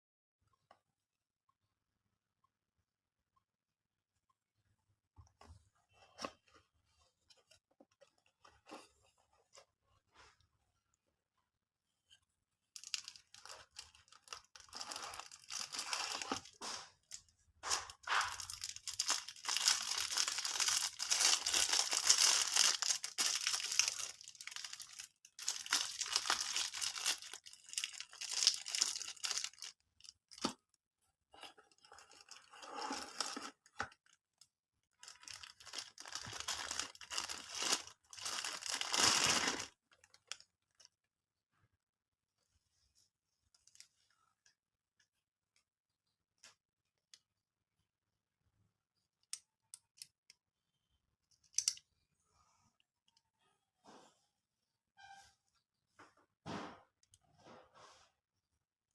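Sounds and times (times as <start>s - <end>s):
packaging tearing and crinkling: 12.8s - 16.6s, 17.7s - 29.7s, 35.0s - 40.4s.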